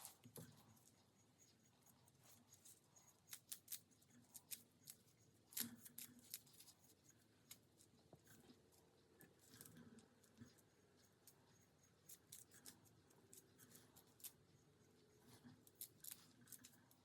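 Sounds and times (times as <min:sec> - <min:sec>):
sharp clicks and snips: 0:02.3 - 0:07.9, 0:15.4 - 0:17.0.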